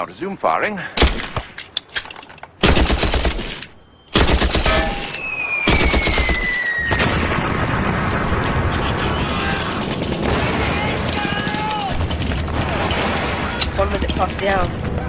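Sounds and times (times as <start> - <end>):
machine gun firing: 2.6 - 5.1, 5.7 - 13.5.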